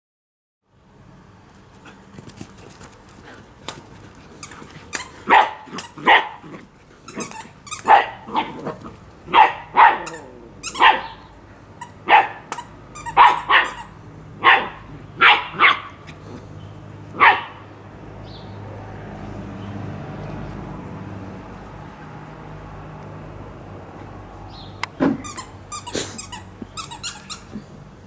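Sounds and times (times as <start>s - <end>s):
dog barking: 5.2s - 6.5s, 7.8s - 8.6s, 9.3s - 11.3s, 12.0s - 12.5s, 13.1s - 16.0s, 17.2s - 17.7s.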